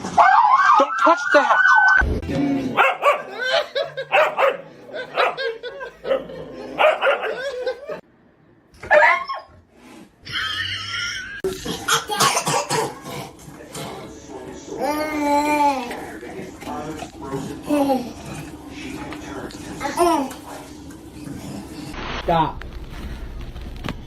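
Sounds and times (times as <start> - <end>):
dogs barking and yipping: 0.0 - 2.0, 2.8 - 8.0, 8.8 - 9.6.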